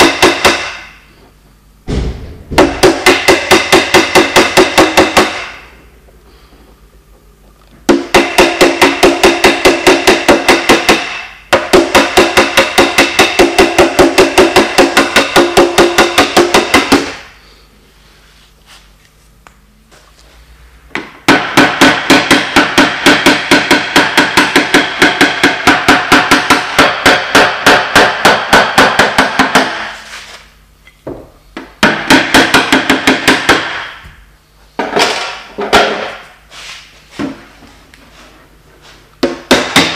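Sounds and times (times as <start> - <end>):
hammer tapping on sheet metal: 0.0 - 0.9, 1.9 - 5.7, 7.9 - 17.2, 20.9 - 30.0, 31.6 - 34.1, 39.2 - 39.9.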